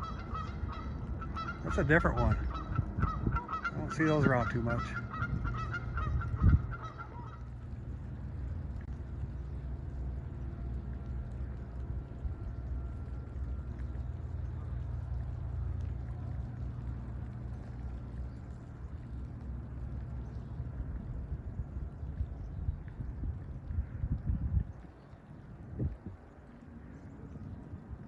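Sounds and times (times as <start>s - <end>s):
honking bird calls: 0.0s - 7.6s
low rumble: 0.0s - 28.0s.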